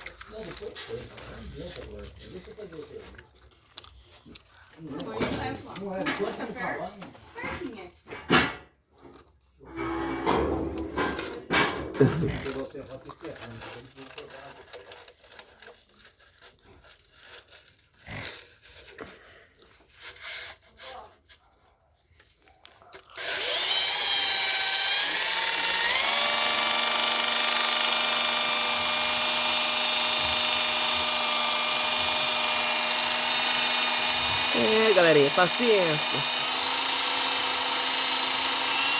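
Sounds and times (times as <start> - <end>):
electric power tool motor whine: 23.2 - 38.9.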